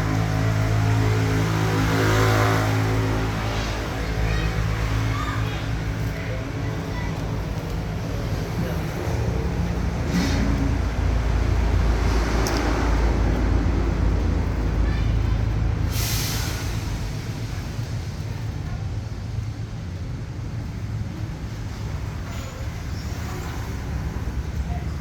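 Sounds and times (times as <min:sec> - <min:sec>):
motor vehicle rumbling: 0:00.0 - 0:25.0.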